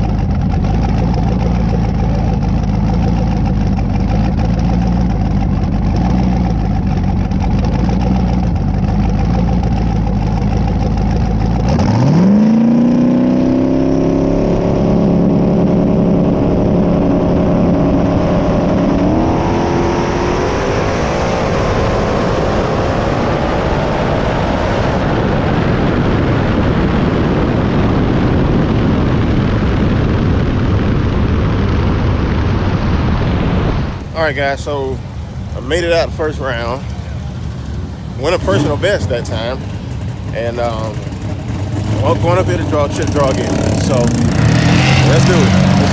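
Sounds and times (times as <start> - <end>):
car engine idling and revving: 0.0 - 45.9
steady rushing noise: 14.6 - 45.9.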